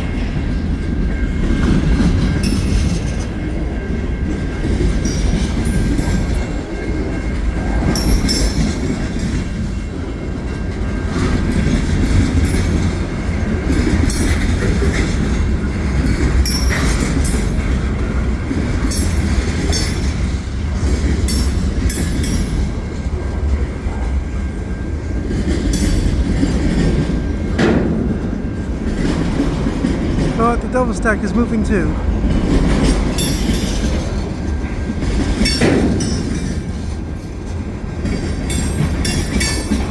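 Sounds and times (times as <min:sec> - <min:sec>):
freight train cars rumbling: 0:00.0 - 0:39.9
wheels and couplers clacking: 0:11.1 - 0:23.0, 0:32.2 - 0:39.9.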